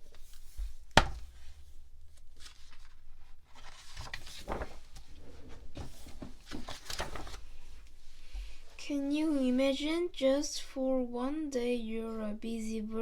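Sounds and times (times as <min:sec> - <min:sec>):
rustling and scraping handling: 0:00.0 - 0:08.7.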